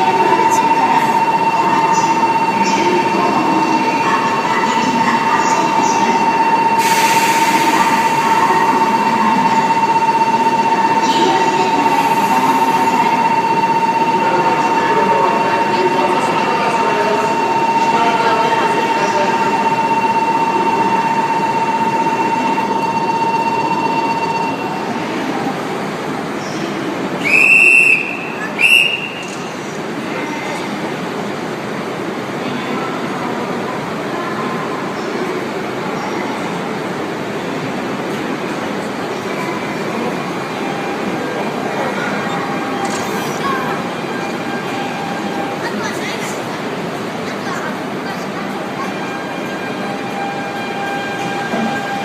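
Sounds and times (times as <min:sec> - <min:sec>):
high-pitched warning tone: 0:00.0 - 0:25.0
train noise: 0:00.0 - 0:52.0
high-pitched whistle blasts: 0:27.2 - 0:29.4.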